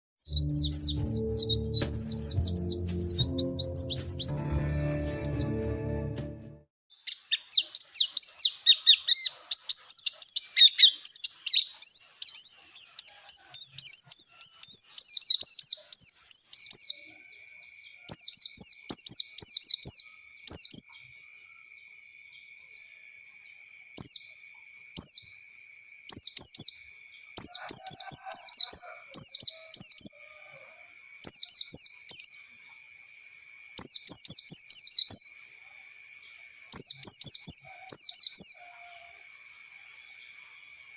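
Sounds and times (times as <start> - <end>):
bird twittering chirps: 0.2 - 5.3, 33.8 - 35.4, 36.8 - 38.6.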